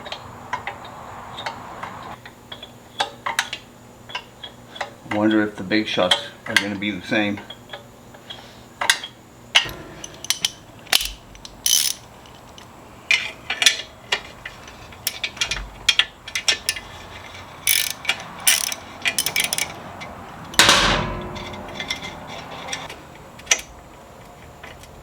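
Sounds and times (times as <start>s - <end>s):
hand ratchet clicking: 9.7s - 13.8s, 15.0s - 23.7s.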